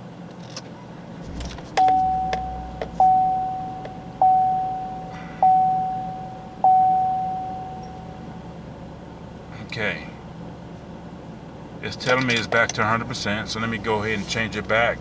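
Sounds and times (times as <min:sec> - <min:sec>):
engine cranking and idling: 0:00.0 - 0:15.0
dashboard warning chime dinging: 0:01.3 - 0:08.6, 0:11.9 - 0:15.0.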